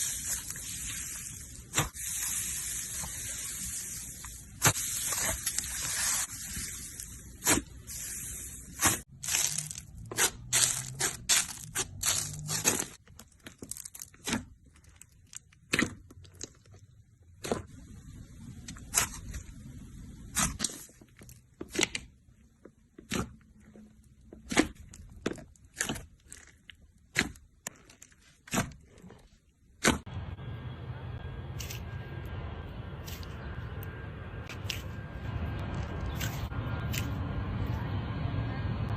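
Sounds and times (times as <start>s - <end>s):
slime squishing: 0.0s - 17.8s, 18.6s - 30.0s.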